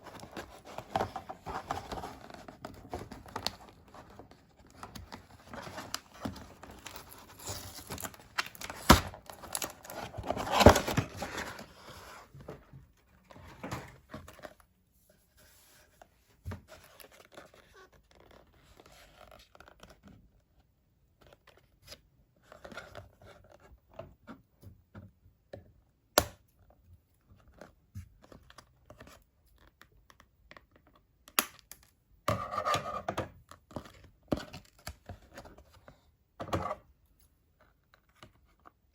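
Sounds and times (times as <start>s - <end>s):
packaging tearing and crinkling: 6.6s - 11.4s.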